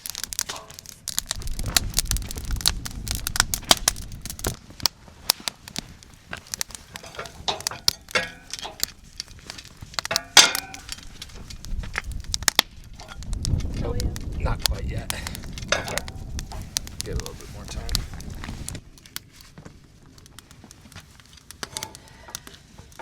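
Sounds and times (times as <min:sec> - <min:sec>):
low rumble: 0:00.0 - 0:04.6, 0:10.8 - 0:19.0
campfire crackling: 0:00.0 - 0:23.0
metal cooking gear clinking: 0:00.1 - 0:01.2, 0:06.8 - 0:11.3, 0:15.7 - 0:16.3.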